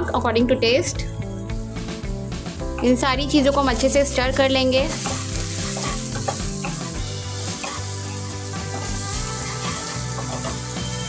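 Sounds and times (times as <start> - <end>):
background music: 0.0 - 11.0
food sizzling in a wok: 3.3 - 11.0
spatula stirring in a wok: 4.9 - 11.0.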